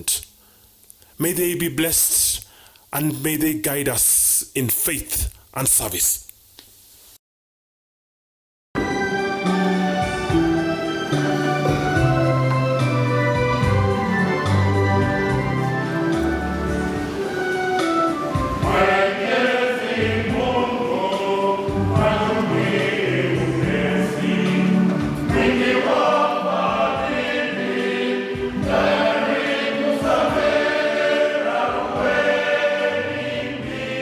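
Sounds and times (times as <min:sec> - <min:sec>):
instrumental backing with beat: 0:08.8 - 0:19.0
choir singing gospel song: 0:09.3 - 0:34.0.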